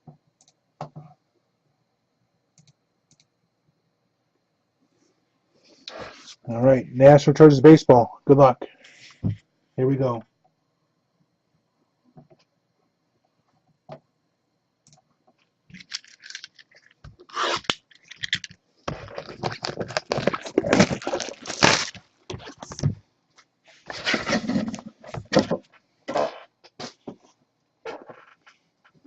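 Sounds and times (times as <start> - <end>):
plastic wrap and cardboard crinkling: 15.8 - 23.0.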